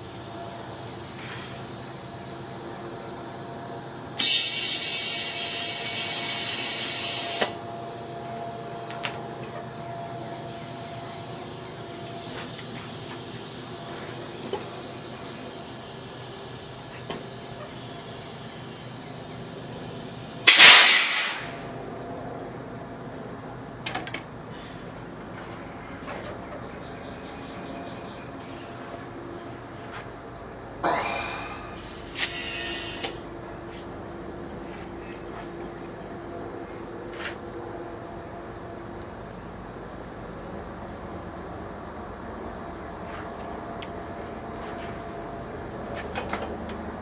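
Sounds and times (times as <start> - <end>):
pressurised spray hissing: 0.0 - 21.6, 31.7 - 33.2.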